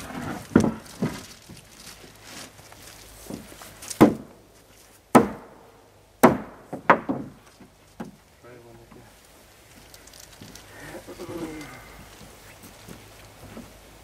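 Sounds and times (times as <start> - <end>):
hammer driving nails into wood: 6.2 - 7.4.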